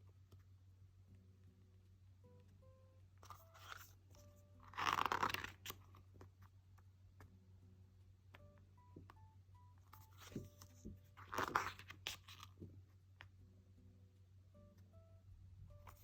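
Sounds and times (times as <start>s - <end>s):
paper page rustling: 3.2s - 6.5s, 9.9s - 12.6s.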